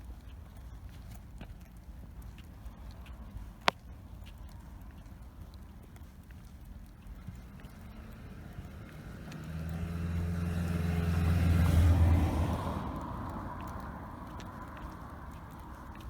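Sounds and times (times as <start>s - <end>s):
vehicle passing by: 7.2s - 16.0s.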